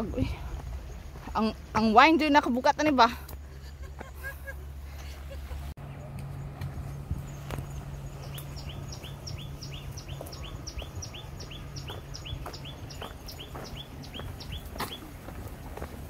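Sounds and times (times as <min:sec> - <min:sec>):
faint footsteps: 0:00.0 - 0:07.9, 0:09.8 - 0:16.0
bird whistling song: 0:07.2 - 0:15.1.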